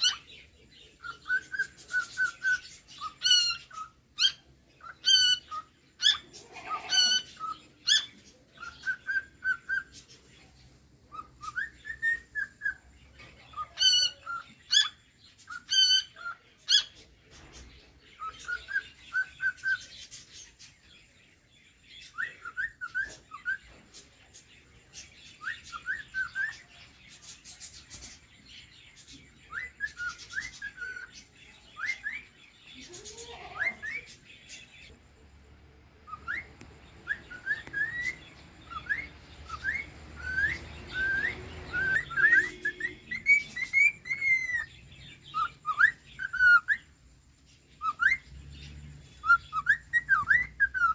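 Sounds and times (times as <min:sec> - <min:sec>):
cockatiel whistling: 0:36.1 - 0:44.7, 0:49.2 - 0:50.9.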